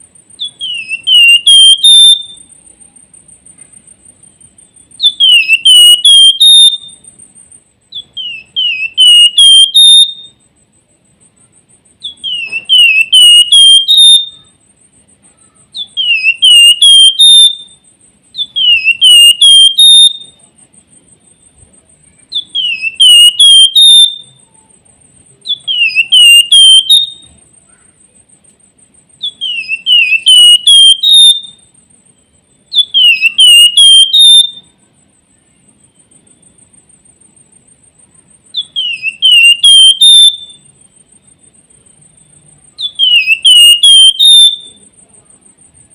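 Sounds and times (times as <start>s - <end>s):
faint steady high buzz: 0.0s - 45.9s
bird singing whistled song: 0.3s - 2.8s, 3.9s - 10.5s, 11.9s - 14.9s, 15.5s - 24.6s, 25.3s - 27.4s, 29.1s - 34.8s, 38.5s - 41.5s, 42.1s - 45.0s.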